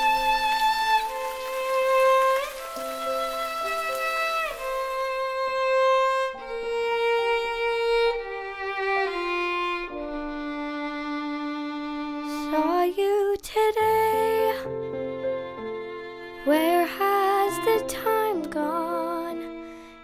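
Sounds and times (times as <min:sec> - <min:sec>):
violin playing long notes: 0:00.0 - 0:12.6.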